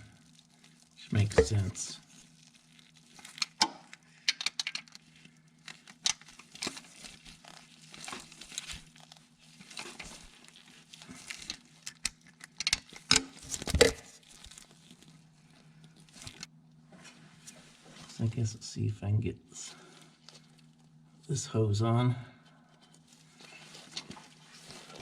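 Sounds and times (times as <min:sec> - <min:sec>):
hands handling tools and parts: 0:01.2 - 0:01.7.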